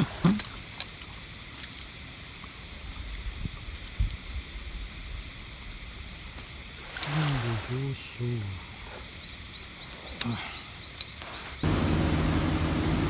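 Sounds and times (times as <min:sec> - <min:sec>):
faint high hiss: 0:00.0 - 0:13.0
faint clicks: 0:09.2 - 0:11.6.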